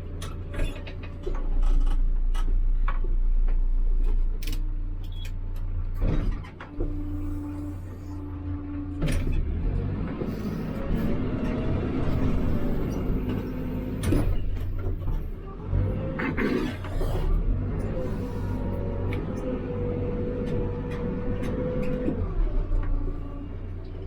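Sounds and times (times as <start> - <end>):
diesel engine under load: 0.0 - 24.0
hydraulic whine: 6.7 - 9.5.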